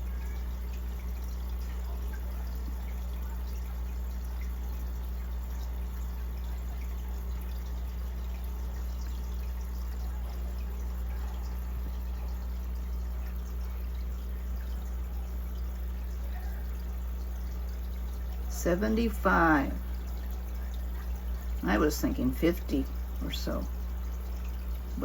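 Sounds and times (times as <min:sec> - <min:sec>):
low equipment hum: 0:00.0 - 0:25.0
water trickling and dripping: 0:00.0 - 0:25.0.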